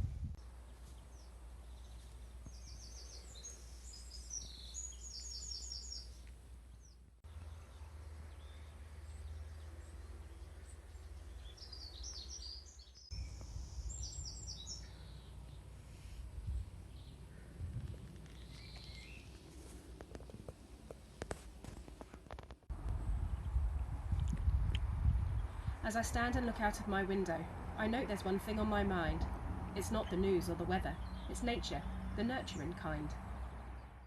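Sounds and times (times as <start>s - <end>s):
small songbirds singing: 0.6s - 15.7s, 16.3s - 17.6s, 18.2s - 19.5s, 29.8s - 34.0s.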